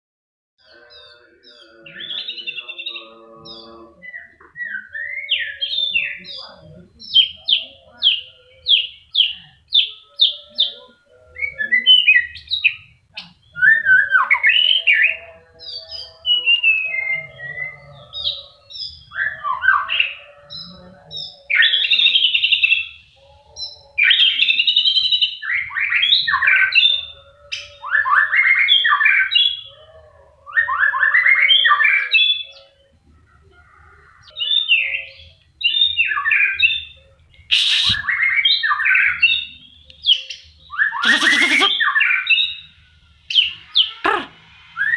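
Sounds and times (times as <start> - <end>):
bird singing whistled song: 0.6 - 6.4, 11.4 - 23.0, 23.6 - 29.8, 34.3 - 44.0.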